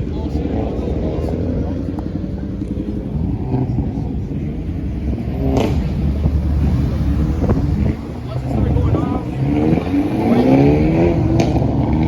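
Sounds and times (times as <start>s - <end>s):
car engines rumbling: 0.0s - 12.0s.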